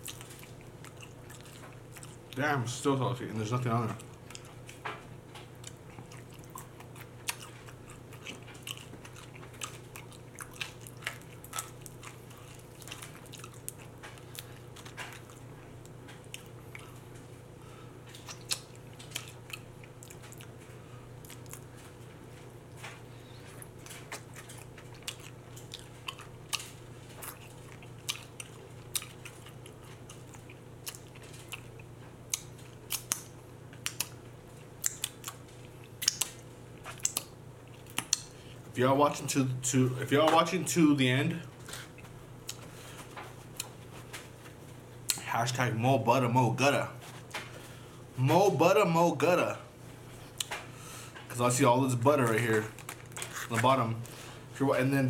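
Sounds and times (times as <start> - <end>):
person chewing: 0.0 - 2.4, 3.8 - 17.4, 18.0 - 38.7, 41.6 - 45.3, 50.2 - 51.4, 52.3 - 54.4
steady low hum: 0.0 - 55.0.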